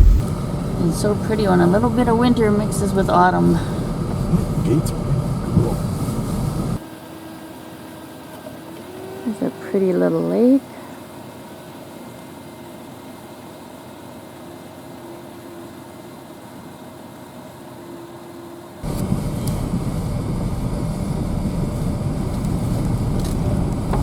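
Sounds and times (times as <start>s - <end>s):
low cabin hum: 0.0s - 6.8s, 18.8s - 24.0s
rough rumbling road noise: 0.0s - 6.8s, 18.8s - 24.0s.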